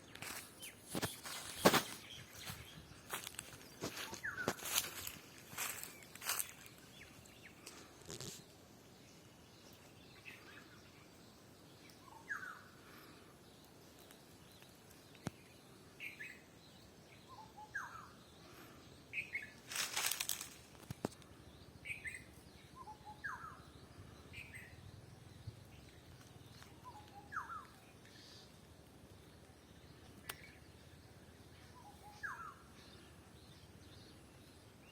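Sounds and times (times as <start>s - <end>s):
rustling: 19.7s - 21.1s.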